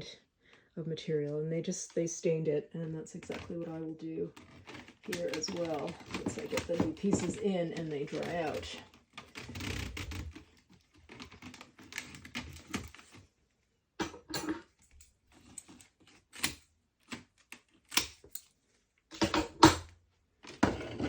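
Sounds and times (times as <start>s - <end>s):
splint strands rustling and scraping: 3.1s - 13.3s.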